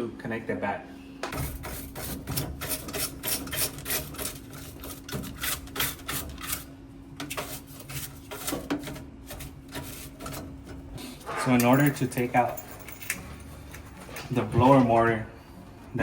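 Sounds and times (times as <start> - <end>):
brush scrubbing metal cabinet: 1.3 - 11.9.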